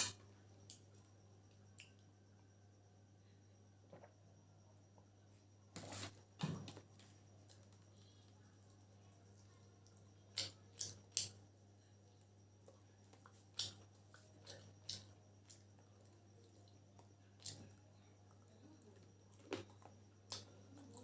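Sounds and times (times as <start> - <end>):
faint hum: 0.0 - 21.0
person chewing noodles: 12.6 - 17.7.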